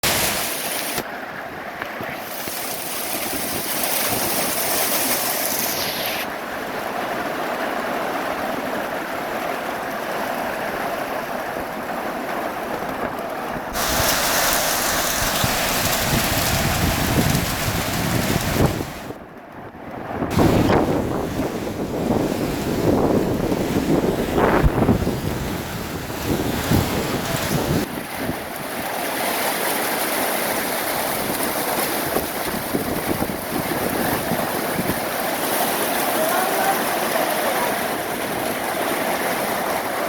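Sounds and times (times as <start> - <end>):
heavy rain pouring: 0.0 - 19.2, 20.0 - 40.0
wind buffeting microphone: 10.1 - 29.0, 30.5 - 40.0.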